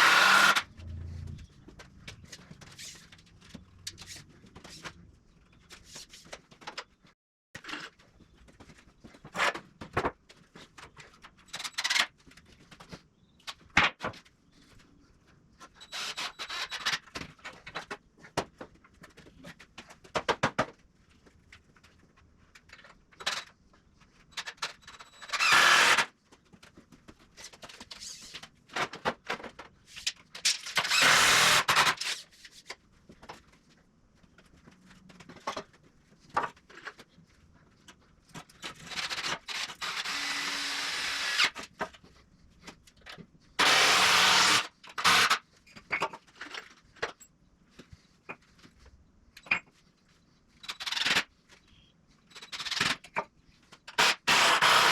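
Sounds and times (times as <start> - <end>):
power drill driving screws: 0.0 - 0.7, 15.9 - 16.7, 25.2 - 26.1, 30.8 - 32.1, 39.0 - 41.6, 43.6 - 45.4, 54.0 - 54.9.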